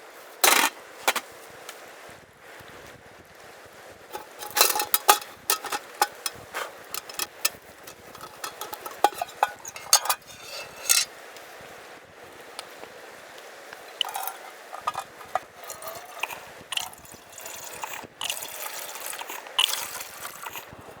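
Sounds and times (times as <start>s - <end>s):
metal cookware clinking: 4.1s - 11.1s, 14.0s - 20.7s.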